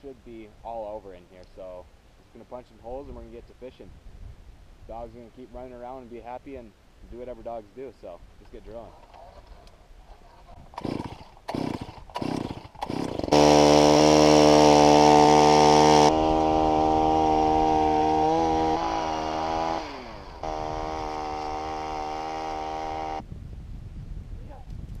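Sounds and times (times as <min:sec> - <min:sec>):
ice auger engine drilling: 0:08.9 - 0:23.2.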